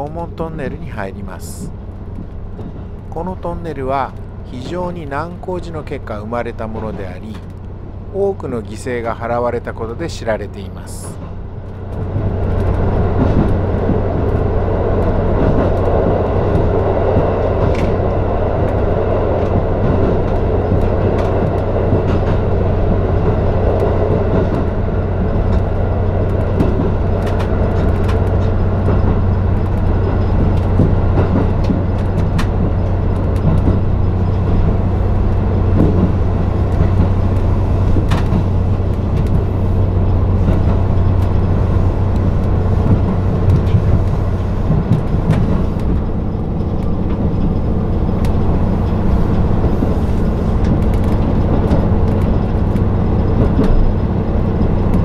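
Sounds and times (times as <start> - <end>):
constant low hum: 0.0 - 55.0
train running rumble: 0.0 - 55.0.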